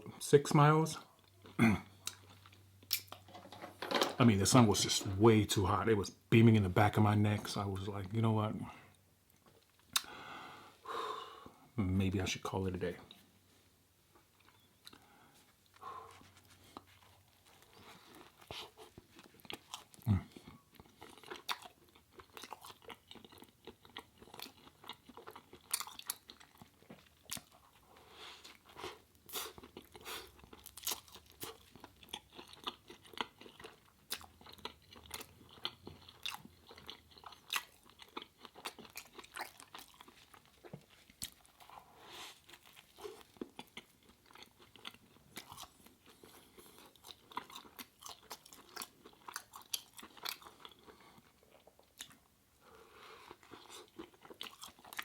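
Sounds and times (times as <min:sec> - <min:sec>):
crunchy bites and chewing: 0:16.7 - 0:27.8, 0:28.5 - 0:52.3, 0:53.3 - 0:55.0.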